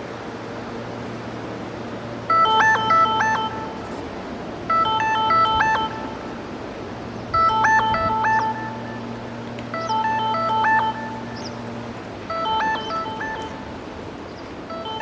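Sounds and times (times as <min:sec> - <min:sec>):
steady low hum: 0:00.0 - 0:15.0
phone ringtone melody: 0:02.3 - 0:03.9, 0:04.7 - 0:06.4, 0:07.3 - 0:11.6, 0:12.3 - 0:13.8, 0:14.7 - 0:15.0.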